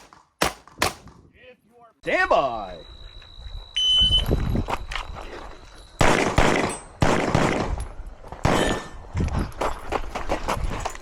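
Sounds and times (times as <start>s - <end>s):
pistol shots with echo: 0.0s - 1.1s, 6.0s - 7.8s, 8.4s - 9.0s.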